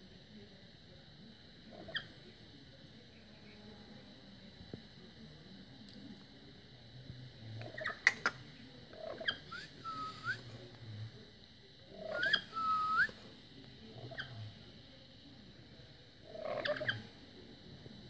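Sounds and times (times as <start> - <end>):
bird whistling: 9.2 - 10.5, 12.0 - 13.2.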